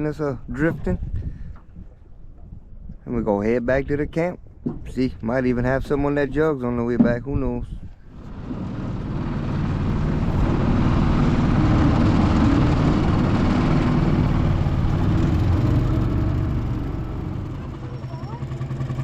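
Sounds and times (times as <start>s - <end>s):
outboard motor running: 8.0s - 19.0s
water rushing over hull: 8.1s - 19.0s.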